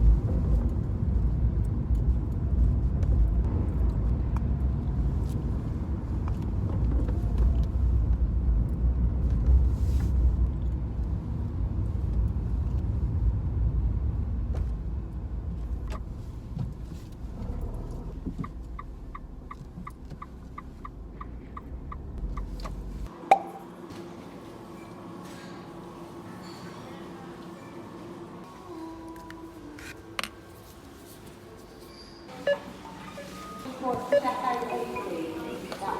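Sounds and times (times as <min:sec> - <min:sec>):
car road and engine rumble: 0:00.0 - 0:23.9
turn signal ticking: 0:15.9 - 0:23.1.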